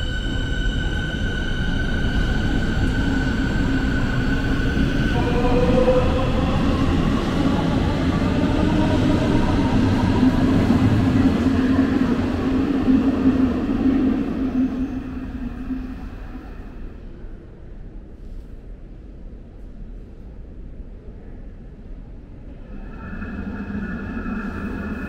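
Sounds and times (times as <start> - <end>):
train drive whine: 0.0 - 17.2, 22.5 - 25.0
electric train rumble: 0.0 - 17.6, 22.3 - 25.0.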